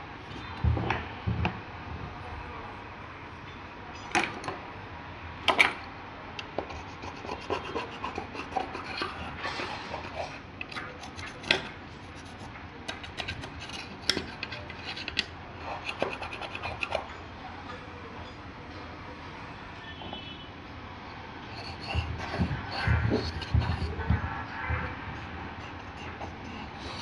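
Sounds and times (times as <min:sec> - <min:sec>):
hand tools scraping and clicking: 0:06.5 - 0:17.2, 0:21.5 - 0:27.0.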